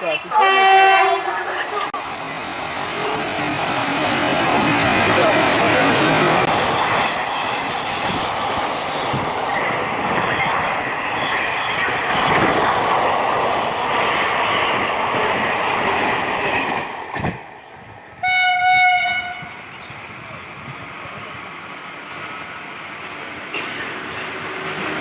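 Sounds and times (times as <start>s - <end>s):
train rushing and rattling: 0.0s - 25.0s
train horn blast: 0.3s - 1.3s, 18.2s - 19.5s.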